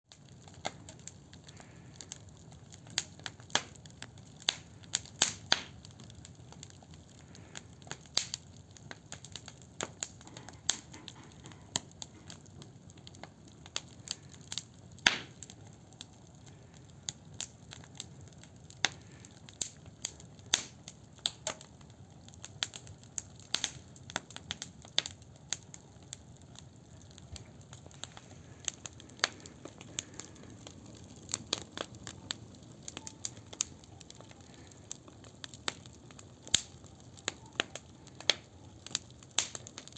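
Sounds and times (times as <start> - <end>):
firewood crackling and popping: 0.1 - 39.9
low fire rumble: 0.1 - 39.9.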